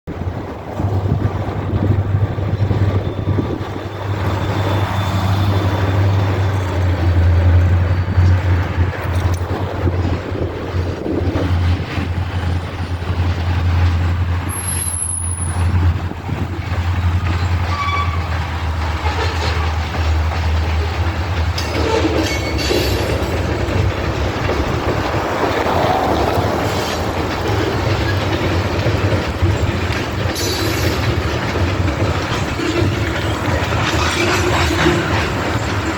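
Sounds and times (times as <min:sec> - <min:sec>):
locomotive engine drone: 0:00.1 - 0:35.9
steel wheels rolling on rails: 0:00.1 - 0:35.9
high wheel squeal: 0:02.5 - 0:08.7, 0:14.4 - 0:15.9, 0:17.0 - 0:19.8, 0:21.6 - 0:23.4.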